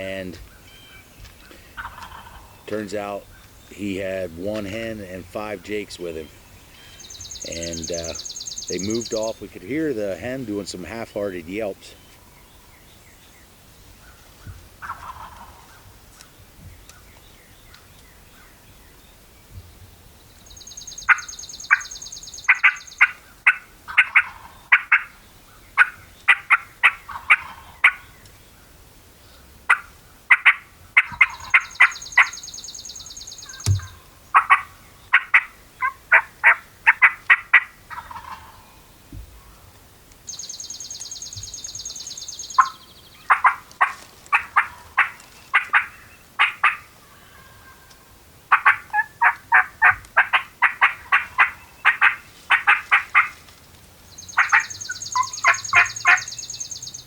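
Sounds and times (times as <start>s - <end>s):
turkey yelps: 1.8s - 2.5s, 14.8s - 15.8s, 21.1s - 21.9s, 22.5s - 25.1s, 25.8s - 28.0s, 29.7s - 32.5s, 33.4s - 38.7s, 42.5s - 53.4s, 54.3s - 56.6s.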